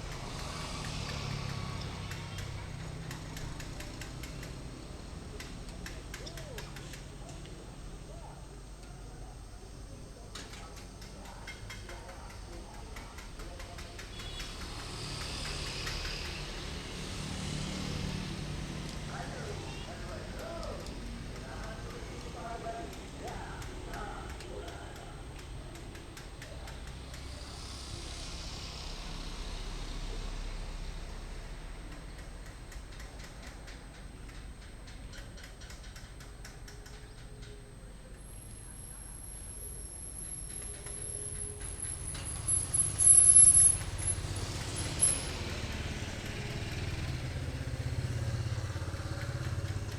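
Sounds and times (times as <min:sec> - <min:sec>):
rapid light clicks: 0:00.1 - 0:07.6, 0:31.9 - 0:49.9.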